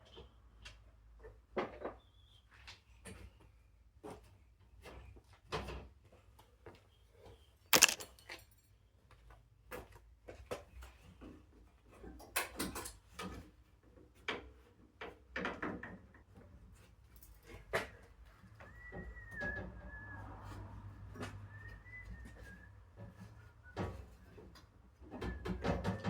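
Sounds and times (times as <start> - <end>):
hard objects knocking and clunking: 7.8 - 8.0.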